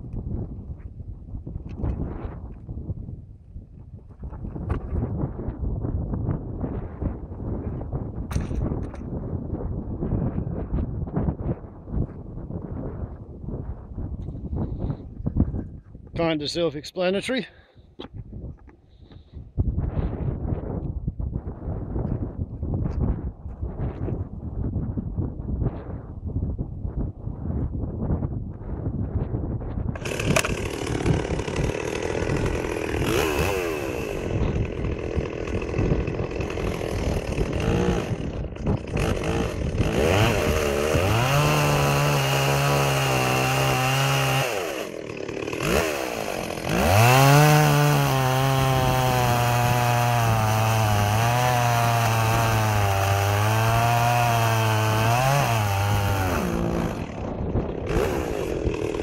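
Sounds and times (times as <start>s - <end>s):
chainsaw idling and revving: 30.0s - 59.0s.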